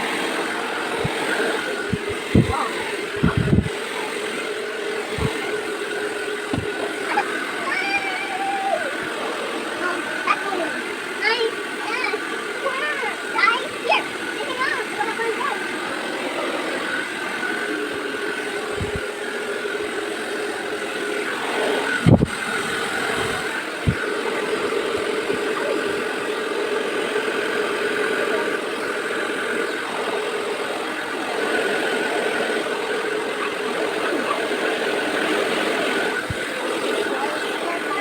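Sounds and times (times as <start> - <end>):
steady machine hum: 0.0 - 38.0
short thumps: 6.5 - 6.8.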